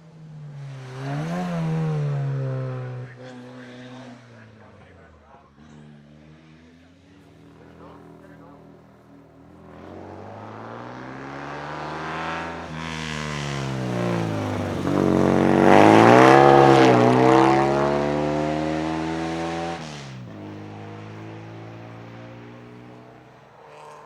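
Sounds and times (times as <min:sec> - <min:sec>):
car accelerating past: 0:00.3 - 0:04.8, 0:09.4 - 0:24.0.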